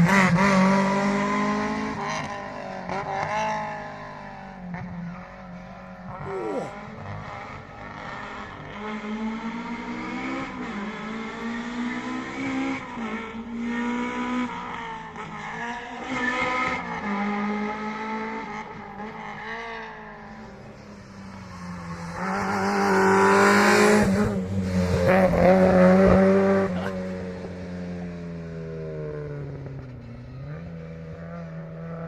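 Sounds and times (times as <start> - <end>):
rally car engine revving: 0.0 - 5.2, 6.1 - 20.5, 21.8 - 27.6.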